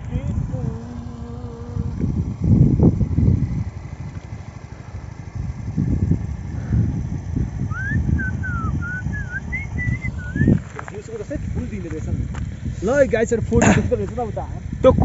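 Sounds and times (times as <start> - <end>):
wind buffeting microphone: 0.0 - 15.0
bird chirping: 7.7 - 11.0.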